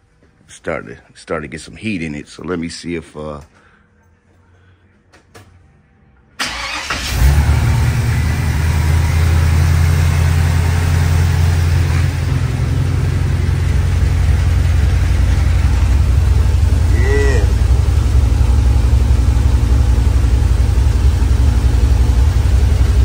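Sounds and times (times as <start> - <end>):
engine cranking: 6.4 - 7.4
engine fast idle: 6.4 - 23.0.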